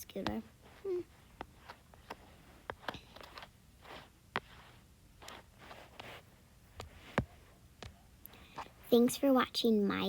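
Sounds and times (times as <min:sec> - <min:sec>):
soft rustles: 0:00.0 - 0:09.4.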